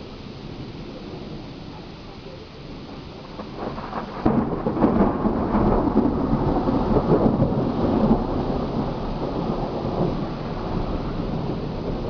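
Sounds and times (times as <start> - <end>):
steady rain: 0.0 - 12.0
thunder rolling and crackling: 2.6 - 12.0.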